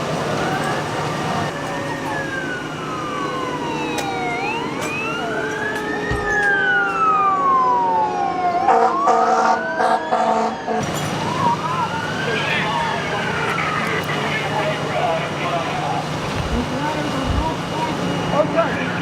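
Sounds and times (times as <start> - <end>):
emergency sirens wailing: 0.0 - 19.0
higher siren sweeping: 0.2 - 19.0.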